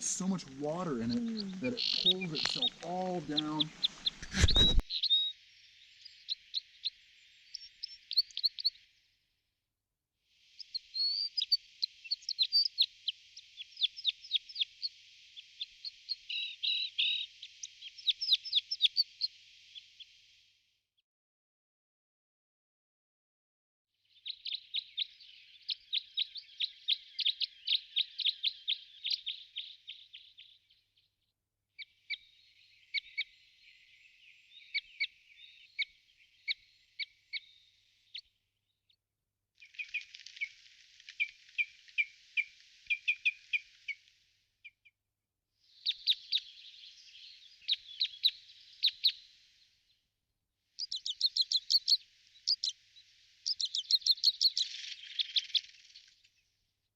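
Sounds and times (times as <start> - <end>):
bird chirping rapidly: 0.0 - 5.3, 50.8 - 52.8, 53.4 - 55.8.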